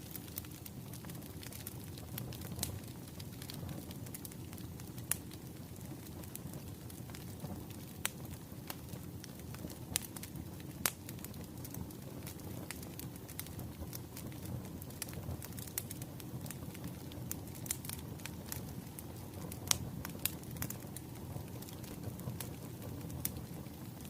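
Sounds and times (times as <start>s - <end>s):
fire crackling and popping: 0.0s - 24.0s
wood fire rumble: 0.0s - 24.0s.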